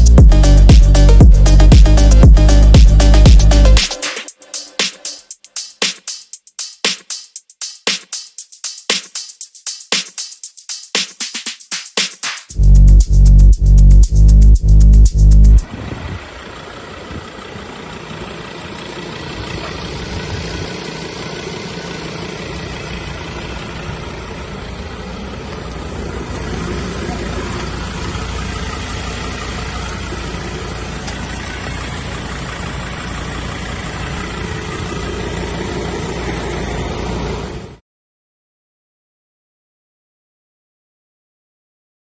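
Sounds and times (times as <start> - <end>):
diesel engine idling: 0.0 - 3.8, 12.6 - 37.6.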